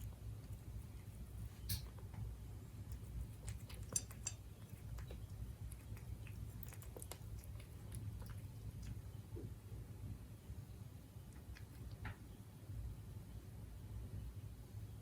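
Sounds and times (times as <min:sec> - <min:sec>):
cat chewing food: 0:00.0 - 0:12.3
small clicks at bowl: 0:02.9 - 0:09.0.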